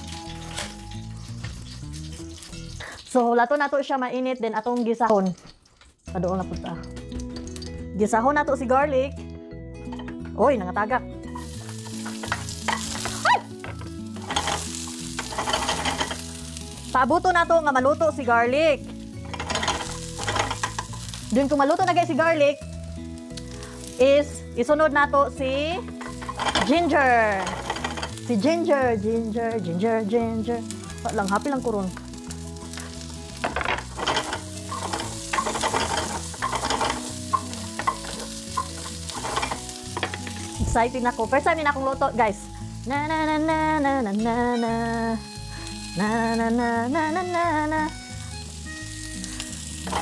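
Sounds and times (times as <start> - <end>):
garlic sizzling in oil: 0.0 - 7.9, 11.2 - 50.0
spatula scraping a pan: 14.2 - 16.2, 26.0 - 26.8, 33.8 - 40.4.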